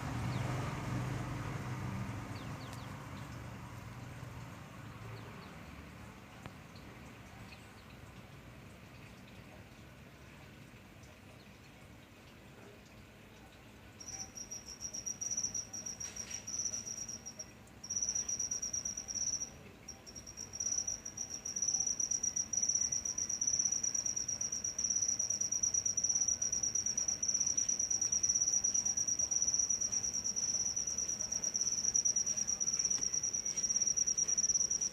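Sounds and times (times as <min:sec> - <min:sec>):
cricket trilling: 0:14.0 - 0:34.9.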